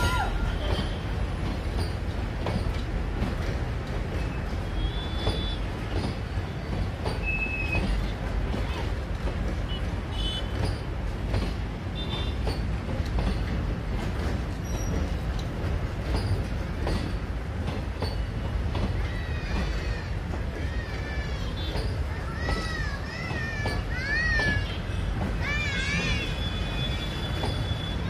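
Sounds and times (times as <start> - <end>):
train coaches rumbling past: 0.0 - 28.0
wheels clattering on rails: 0.0 - 28.0
high wheel squeaks: 4.1 - 8.9, 9.6 - 13.7, 14.3 - 17.2, 18.0 - 28.0.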